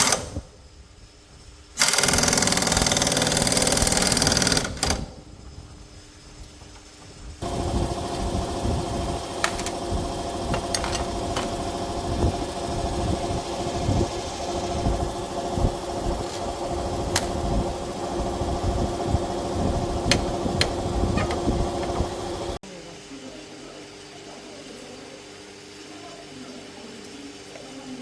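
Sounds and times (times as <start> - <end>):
motor running: 1.8 - 5.1, 7.4 - 22.6.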